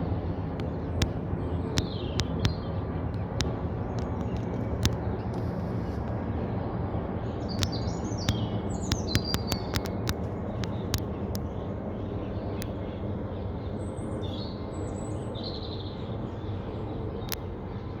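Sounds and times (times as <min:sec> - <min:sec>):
jet rumble overhead: 0:00.0 - 0:18.0
birds chirping: 0:00.5 - 0:17.9
sharp clicks: 0:00.6 - 0:06.2, 0:07.6 - 0:11.5.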